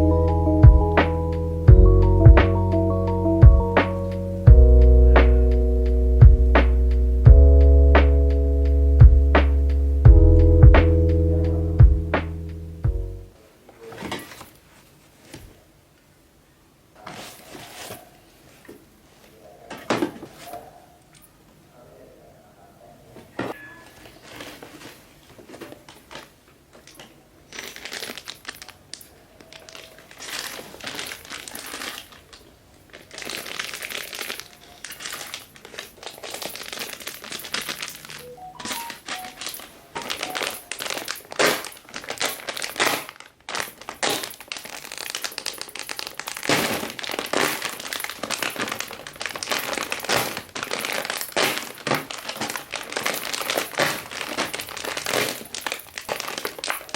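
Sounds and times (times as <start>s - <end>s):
plastic packets crinkling: 23.8s - 56.9s.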